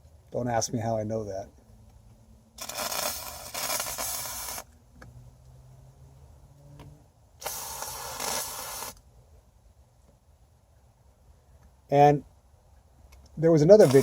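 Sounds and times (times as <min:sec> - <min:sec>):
aerosol can spraying hiss: 0:02.6 - 0:04.6, 0:07.4 - 0:09.0.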